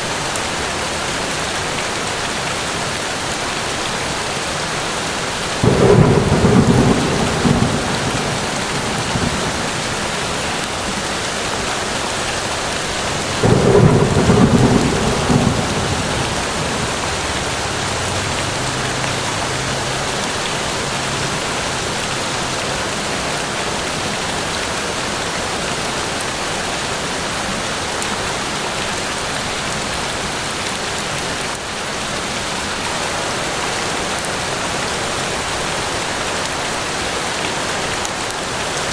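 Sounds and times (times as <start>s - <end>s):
heavy rain falling: 0.0s - 38.9s
thunder rolling: 5.6s - 12.2s, 13.0s - 24.0s.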